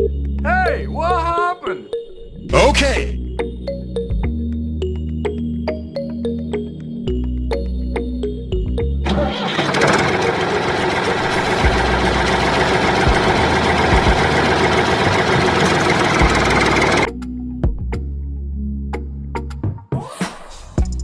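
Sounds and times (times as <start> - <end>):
engine starting and running: 9.0 - 17.1.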